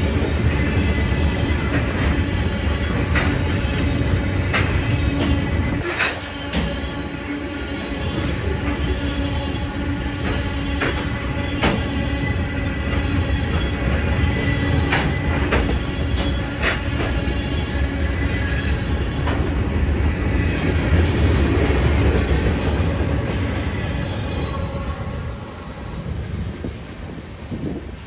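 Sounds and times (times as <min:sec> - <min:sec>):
train wheels rumbling on rails: 0:00.0 - 0:28.0
wheels clicking over rail joints: 0:00.1 - 0:07.0, 0:12.8 - 0:17.6.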